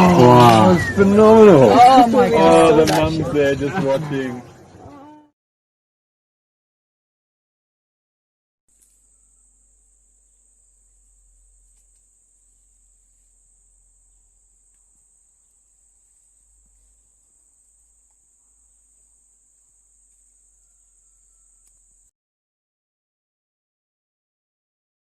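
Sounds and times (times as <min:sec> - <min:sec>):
insects chirring: 0:08.7 - 0:22.1.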